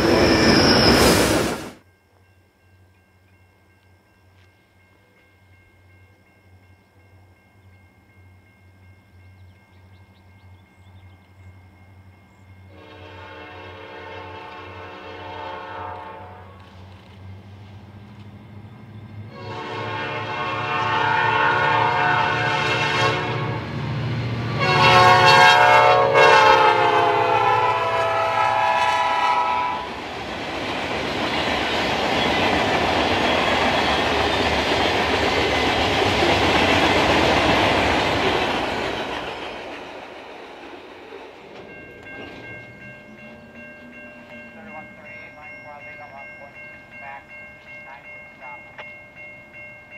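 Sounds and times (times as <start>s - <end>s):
locomotive horn blasts: 12.7s - 16.6s, 19.3s - 23.8s, 24.5s - 29.9s
train wheels clattering on rails: 29.9s - 46.1s.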